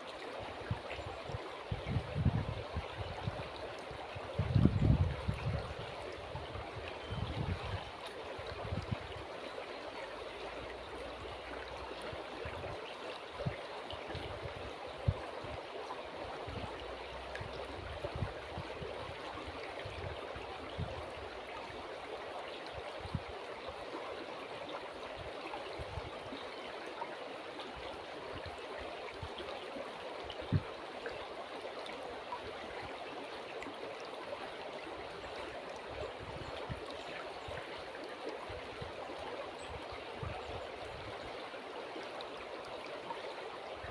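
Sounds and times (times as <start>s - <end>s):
river water rushing: 5.7s - 43.9s.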